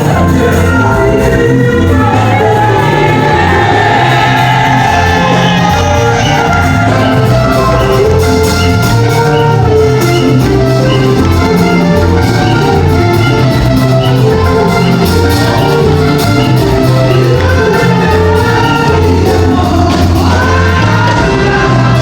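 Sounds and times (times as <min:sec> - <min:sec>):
person singing or shouting: 0:00.0 - 0:07.5, 0:17.5 - 0:22.0
loud music with bass and beat: 0:00.0 - 0:22.0.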